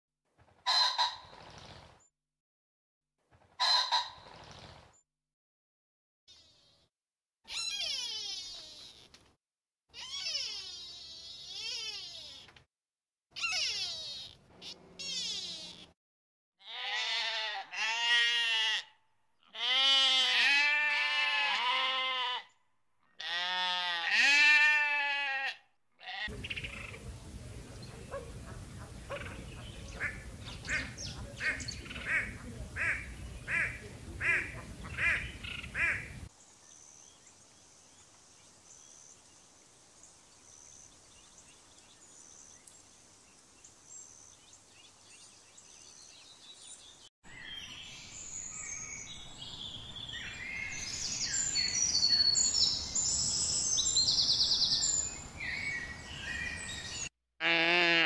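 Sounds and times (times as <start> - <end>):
livestock bleating: 16.6 - 22.5, 23.2 - 26.3, 57.4 - 58.0.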